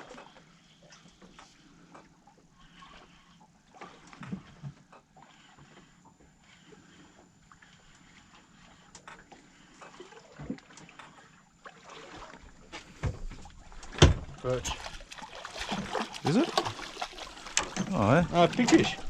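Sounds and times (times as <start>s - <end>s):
water noise: 6.7s - 19.0s.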